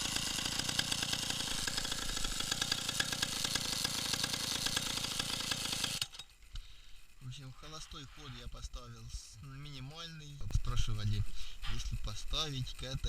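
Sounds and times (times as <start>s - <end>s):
two-stroke engine running: 0.0s - 6.8s.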